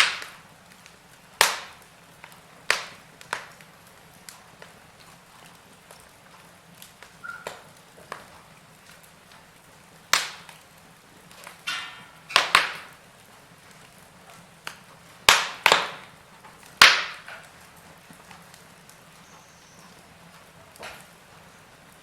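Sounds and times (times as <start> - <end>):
loud sharp pops: 0.0 - 3.7, 6.8 - 8.3, 10.1 - 10.7, 11.4 - 13.0, 14.7 - 18.6
wood fire crackling: 0.0 - 22.0.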